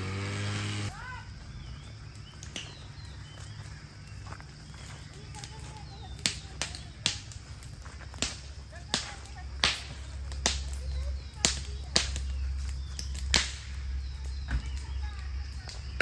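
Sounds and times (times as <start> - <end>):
sharp cracking strikes: 0.0 - 1.1, 6.2 - 14.9
steady low rumble: 6.1 - 16.0.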